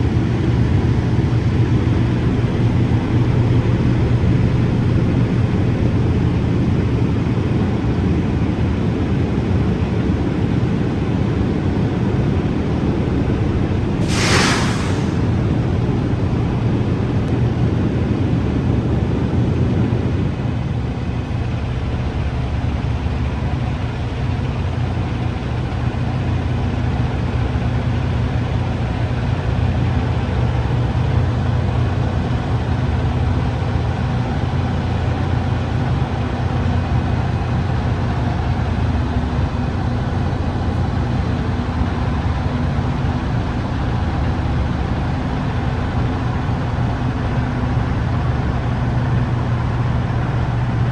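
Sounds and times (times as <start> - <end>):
diesel truck engine humming: 0.0 - 17.5
rushing noise: 11.0 - 17.5.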